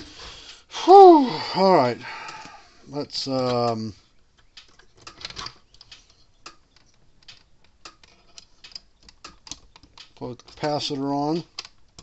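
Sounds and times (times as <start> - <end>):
small parts clicking and tapping: 3.3 - 12.0.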